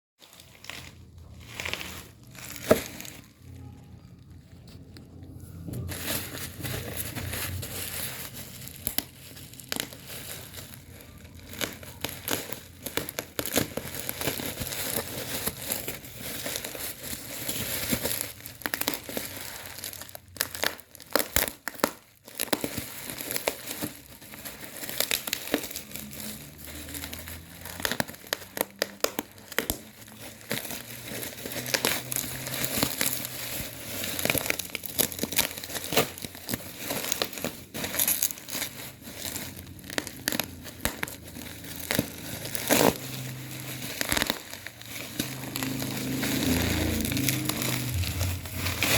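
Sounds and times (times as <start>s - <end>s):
packaging crinkling and rustling: 0.2s - 48.9s.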